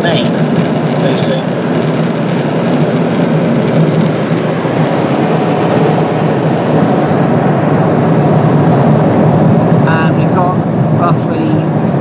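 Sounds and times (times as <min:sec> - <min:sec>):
airliner cabin drone: 0:00.0 - 0:12.0.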